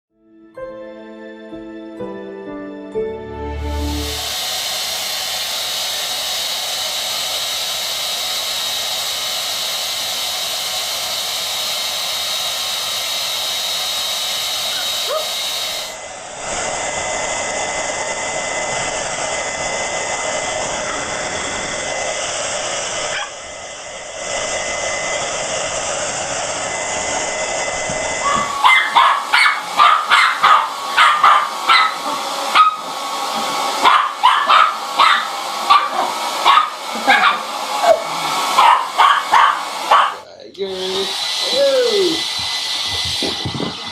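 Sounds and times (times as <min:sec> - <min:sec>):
hair dryer running: 0:03.2 - 0:43.9
dog barking rapidly: 0:15.0 - 0:15.4, 0:23.1 - 0:23.4, 0:28.2 - 0:33.0, 0:33.7 - 0:40.2.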